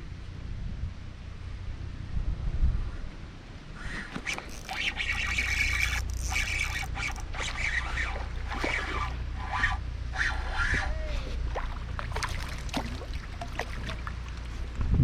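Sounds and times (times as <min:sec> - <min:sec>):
water sloshing and splashing: 0:03.9 - 0:10.6, 0:11.3 - 0:14.9
steady low rumble: 0:06.5 - 0:15.0.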